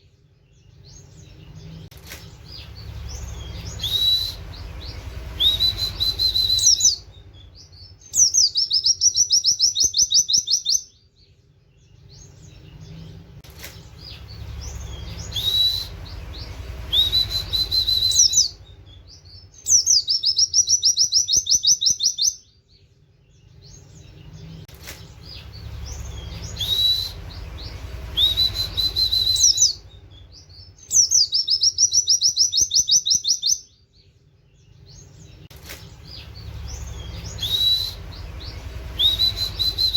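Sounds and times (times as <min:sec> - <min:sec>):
bird singing whistles and trills: 0:00.4 - 0:39.9
low rumble: 0:01.2 - 0:08.1, 0:12.4 - 0:19.5, 0:24.0 - 0:30.8, 0:35.2 - 0:39.9.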